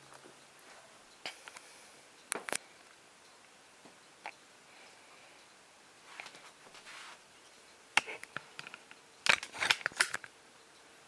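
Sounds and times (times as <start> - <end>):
soft rustle: 6.0 - 8.2.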